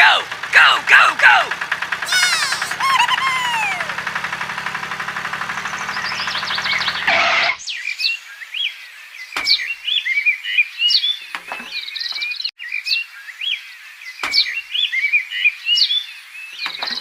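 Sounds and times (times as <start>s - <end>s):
downward-sweeping bird call: 2.1s - 4.1s
birds chirping and twittering: 2.9s - 17.0s.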